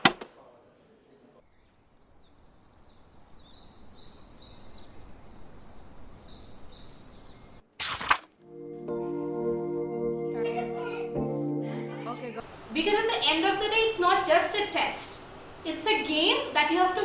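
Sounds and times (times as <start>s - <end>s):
small birds chirping: 1.4s - 7.6s.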